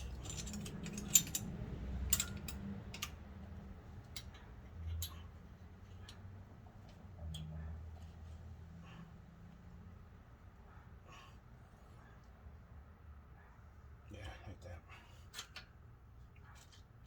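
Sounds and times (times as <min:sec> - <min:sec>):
metal clicks and taps of brake parts: 0:00.0 - 0:05.4, 0:06.9 - 0:07.5, 0:15.3 - 0:15.8.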